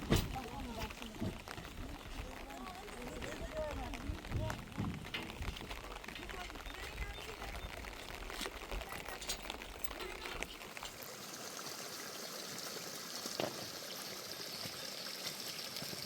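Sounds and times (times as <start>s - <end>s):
trickling water: 0.0s - 16.0s
small clicks and splashes: 0.2s - 11.0s.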